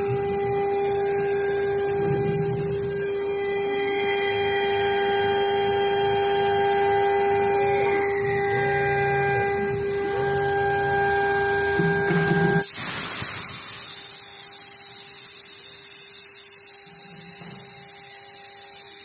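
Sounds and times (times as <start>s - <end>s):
router spindle high whine: 0.0s - 12.8s, 13.5s - 19.0s
hissy high-pitched noise: 9.2s - 19.0s.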